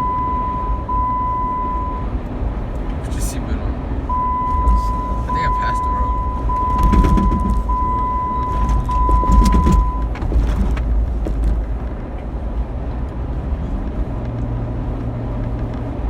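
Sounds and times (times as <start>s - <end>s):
seatbelt reminder beep: 0.0s - 2.1s, 4.1s - 10.1s
engine and road rumble in cab: 0.0s - 16.0s.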